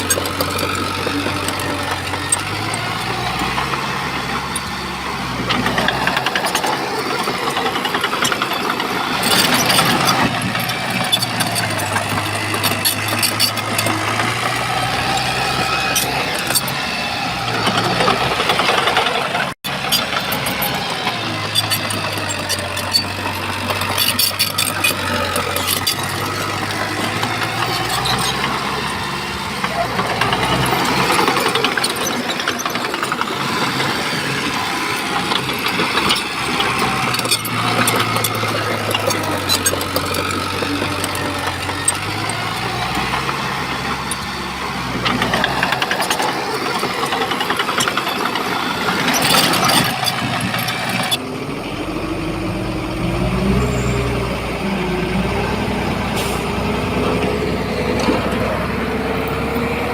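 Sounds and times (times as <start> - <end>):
bulldozer diesel engine: 0.0 - 59.9
rising engine whine: 0.0 - 59.9.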